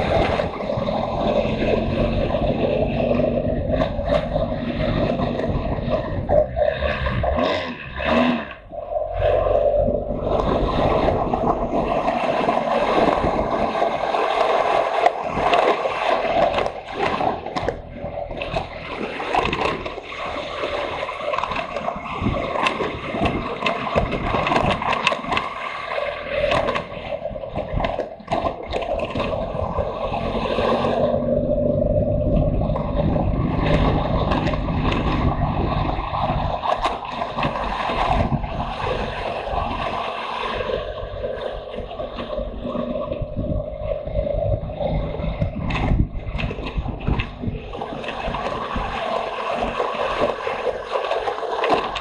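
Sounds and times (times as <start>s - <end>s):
wind on microphone: 0.0s - 52.0s
motorcycle engine running: 26.5s - 40.2s.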